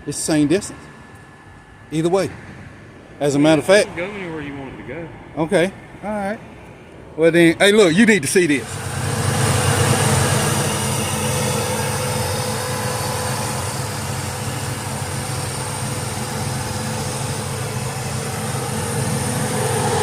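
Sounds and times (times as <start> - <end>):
truck engine idling: 8.5 - 20.0.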